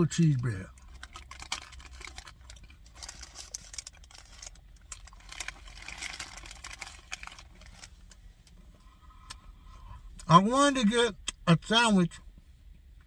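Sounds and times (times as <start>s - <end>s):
low steady hum: 0.0s - 13.0s
handling clicks and rustling: 0.3s - 8.6s.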